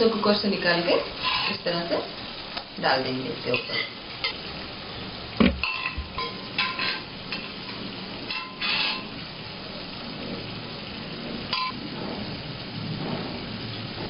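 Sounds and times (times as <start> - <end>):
low sizzle: 0.0 - 14.0.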